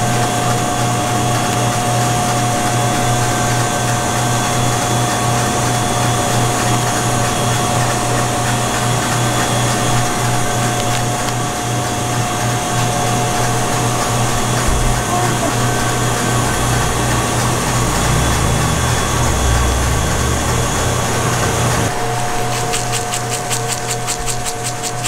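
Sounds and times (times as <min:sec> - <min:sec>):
small electric motor whirring: 0:02.3 - 0:25.0
deep rumble: 0:14.2 - 0:22.0.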